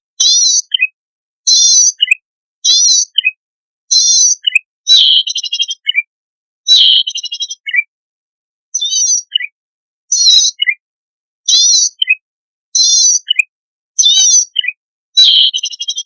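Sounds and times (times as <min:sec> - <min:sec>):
bird buzzy calls: 0:04.1 - 0:05.5.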